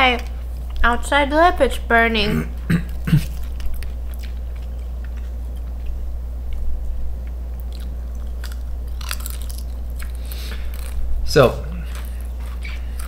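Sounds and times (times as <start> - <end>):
steady low hum: 0.0 - 13.0
crunchy chips being chewed: 2.9 - 6.0, 7.2 - 11.0, 11.6 - 13.0.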